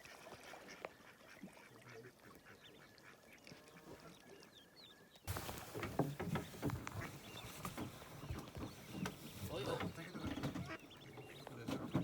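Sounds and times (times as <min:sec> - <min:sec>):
waterfowl quacking and honking: 0:00.0 - 0:04.0, 0:06.8 - 0:07.5, 0:09.5 - 0:11.6.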